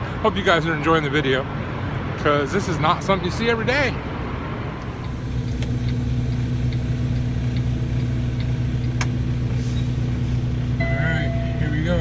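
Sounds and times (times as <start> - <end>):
diesel engine idling: 4.6 - 12.0
faint regular ticking: 4.7 - 12.0.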